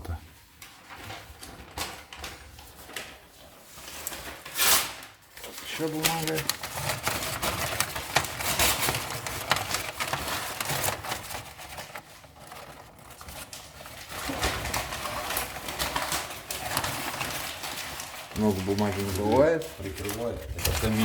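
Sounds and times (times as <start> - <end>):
paper crackling and rustling: 0.0 - 21.0
kindling fire crackling: 5.3 - 11.3, 13.2 - 21.0.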